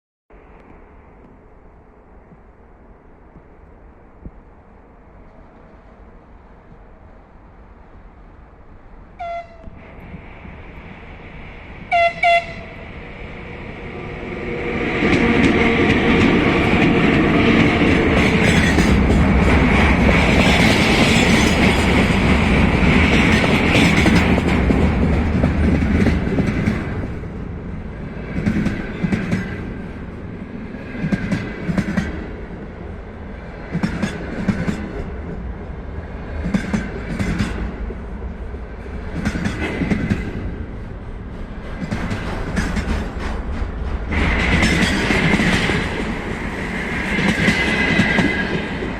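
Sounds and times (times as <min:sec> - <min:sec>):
train passing: 0:00.3 - 0:48.9
locomotive horn toots: 0:09.2 - 0:09.8, 0:11.9 - 0:12.8
wheels clacking over rail joints: 0:15.0 - 0:27.2, 0:41.6 - 0:48.9.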